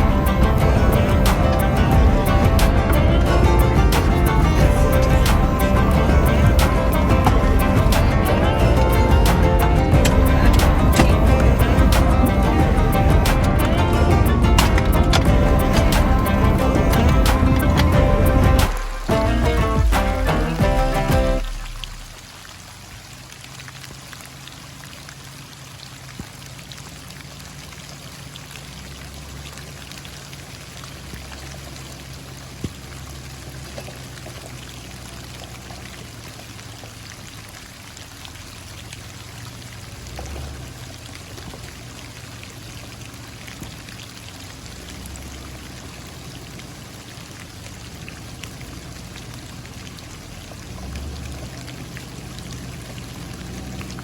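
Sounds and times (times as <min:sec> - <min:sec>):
low hum: 0:00.0 - 0:22.3
rain pattering: 0:00.0 - 0:54.0.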